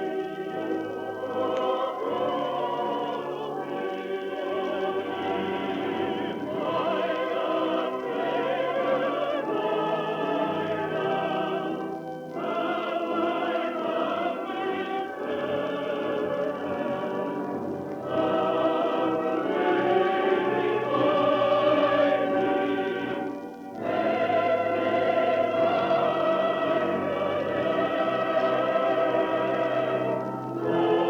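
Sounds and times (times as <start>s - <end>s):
choir singing with vibrato: 0.0s - 31.0s.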